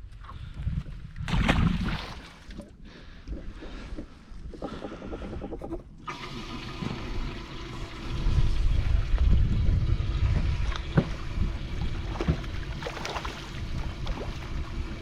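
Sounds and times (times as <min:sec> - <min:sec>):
water against boat hull: 0:01.2 - 0:15.0
wind rumble: 0:07.3 - 0:15.0.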